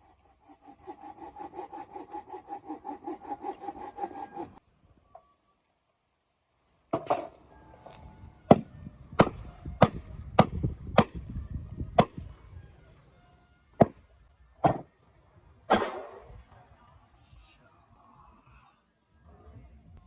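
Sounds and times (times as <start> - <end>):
axe chopping wood: 9.2 - 11.2, 12.0 - 12.2, 14.6 - 14.9.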